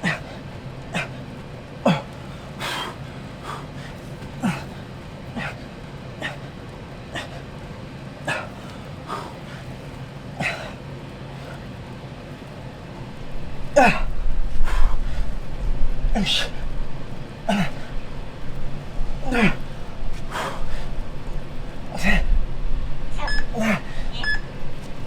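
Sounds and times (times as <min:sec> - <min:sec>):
faint low steady hum: 0:00.0 - 0:25.0
man exhaling hard and grunting: 0:13.7 - 0:15.3, 0:16.1 - 0:16.7, 0:17.5 - 0:18.0, 0:19.2 - 0:20.9, 0:21.8 - 0:22.3, 0:23.2 - 0:24.2.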